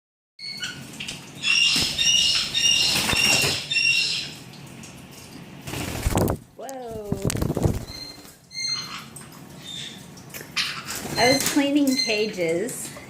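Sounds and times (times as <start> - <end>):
wings flapping and splashing: 0.6 - 12.4
high squeaky bird call: 1.4 - 4.4, 7.8 - 10.0.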